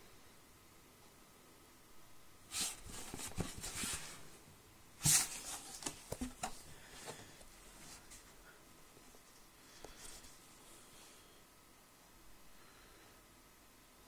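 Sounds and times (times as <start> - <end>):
rustling of handled boot: 2.5 - 4.4, 5.0 - 8.4.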